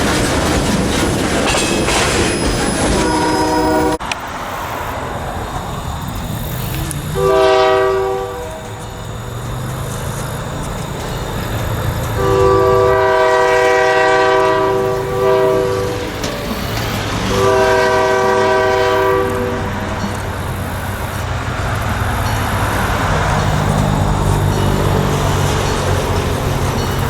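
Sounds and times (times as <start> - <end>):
locomotive engine rumbling: 0.0 - 27.0
train wheels rolling on rails: 0.0 - 27.0
locomotive air horn blasts: 2.9 - 4.0, 7.1 - 9.5, 12.1 - 20.0.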